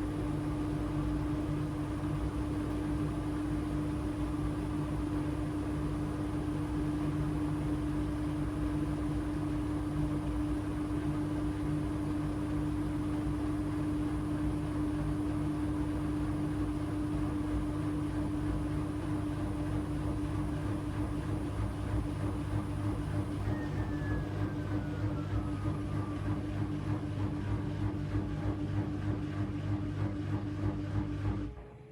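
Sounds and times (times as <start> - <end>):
washing machine spinning: 0.0 - 31.9
whine gliding down in pitch: 23.2 - 27.1.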